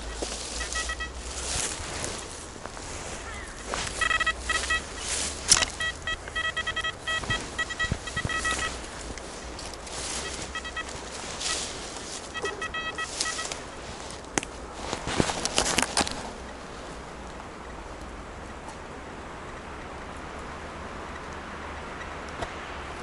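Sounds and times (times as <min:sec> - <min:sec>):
metal detector beeping: 0:00.0 - 0:02.2, 0:03.2 - 0:14.2
rustling noise: 0:00.0 - 0:17.4.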